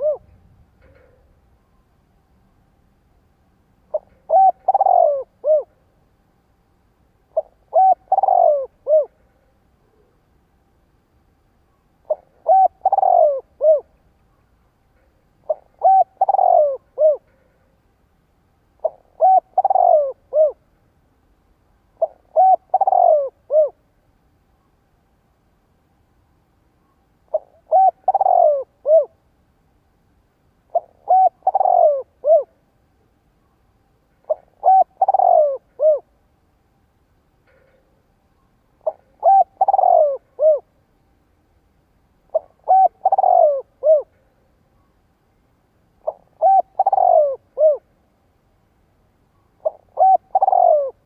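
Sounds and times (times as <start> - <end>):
dove cooing: 0.0 - 1.3, 3.9 - 5.9, 7.3 - 10.2, 12.0 - 14.0, 15.0 - 17.7, 18.8 - 20.6, 21.9 - 23.8, 27.3 - 29.2, 30.7 - 32.6, 34.2 - 36.1, 38.8 - 40.8, 42.3 - 44.4, 46.0 - 47.9, 49.6 - 51.0.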